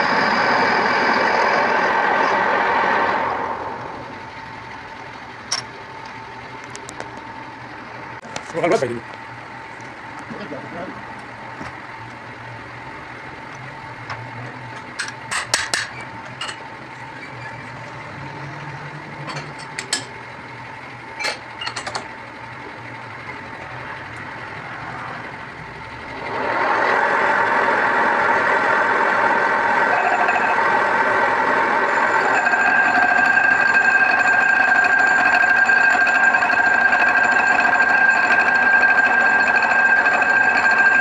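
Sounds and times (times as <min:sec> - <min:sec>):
metalworking machine running: 0:00.0 - 0:41.0.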